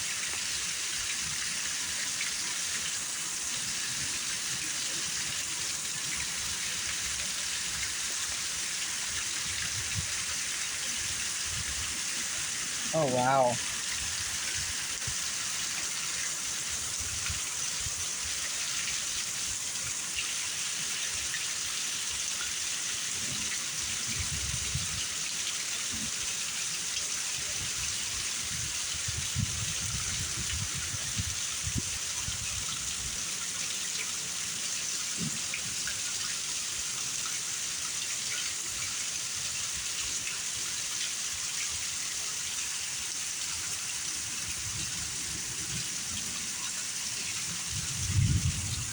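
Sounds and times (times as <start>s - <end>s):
heavy rain pouring: 11.0s - 15.7s, 44.2s - 48.9s
low thunder rumbles: 47.7s - 48.9s.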